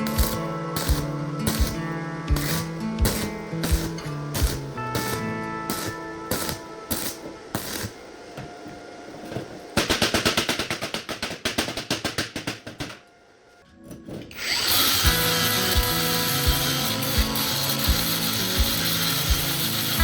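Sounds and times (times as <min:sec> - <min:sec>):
power tool clicking: 0:00.0 - 0:08.0, 0:14.3 - 0:20.0
power tool hissing: 0:00.0 - 0:08.5, 0:14.4 - 0:20.0
background music: 0:00.0 - 0:20.0.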